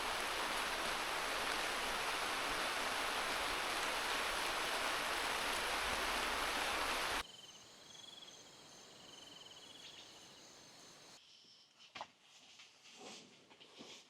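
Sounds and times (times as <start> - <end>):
heavy rain hissing: 0.0 - 7.2
insects trilling: 0.0 - 11.2.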